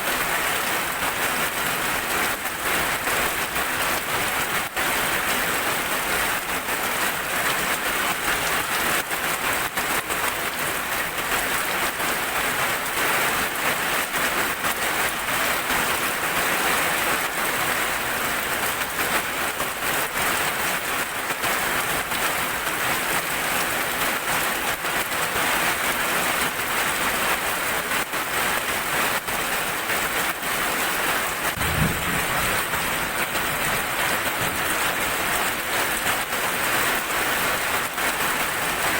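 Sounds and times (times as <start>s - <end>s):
steady rain falling: 0.0s - 38.9s
low thud: 31.5s - 34.5s.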